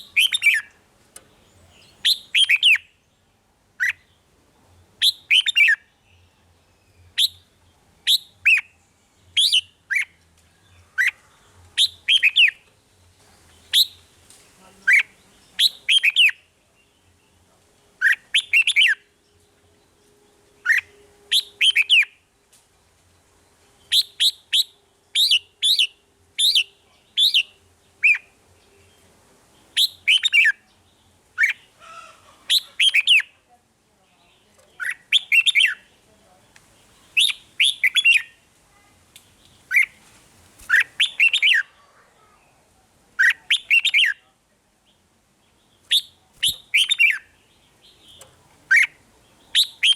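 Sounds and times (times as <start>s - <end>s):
bulbul whistled song: 0.0s - 0.8s, 1.8s - 3.0s, 5.0s - 10.2s, 11.8s - 12.7s, 13.7s - 14.0s, 14.9s - 16.5s, 18.0s - 19.1s, 20.6s - 22.2s, 23.8s - 28.3s, 29.7s - 30.6s, 32.5s - 33.3s, 34.8s - 35.9s, 37.1s - 38.4s, 39.7s - 40.0s, 40.6s - 41.7s, 43.2s - 44.2s, 45.8s - 49.9s.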